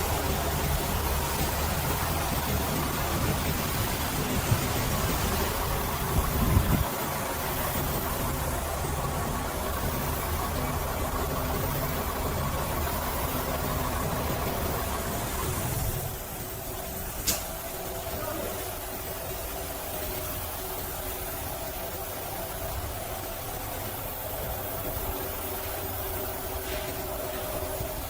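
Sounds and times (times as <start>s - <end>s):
truck engine idling: 0.0s - 28.0s
sharp click: 17.2s - 17.5s.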